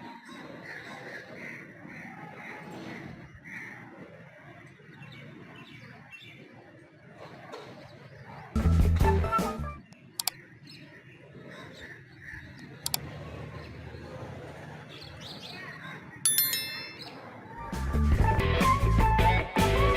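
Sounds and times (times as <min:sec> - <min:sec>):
sharp clicks: 0:09.9 - 0:10.4, 0:12.6 - 0:13.1
bright ringing ding: 0:16.3 - 0:17.4.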